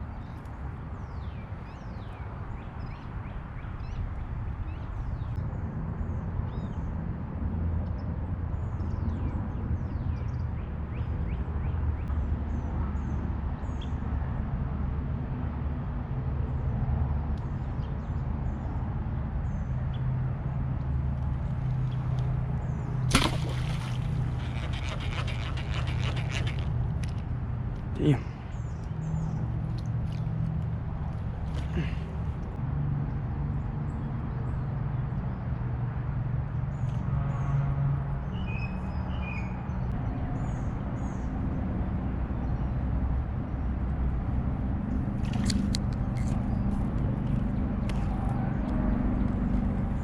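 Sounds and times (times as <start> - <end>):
low rumble on water: 20.8 - 32.6
birds chirping: 21.4 - 30.4
loud rasping noise: 24.3 - 26.7.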